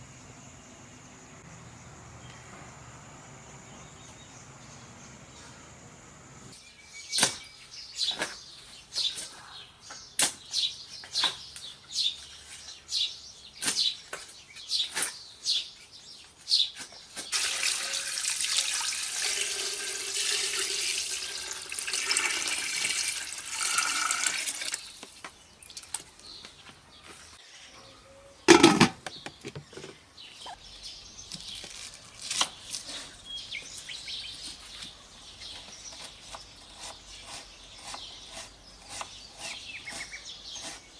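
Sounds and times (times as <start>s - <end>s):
water pouring: 17.3s - 25.0s.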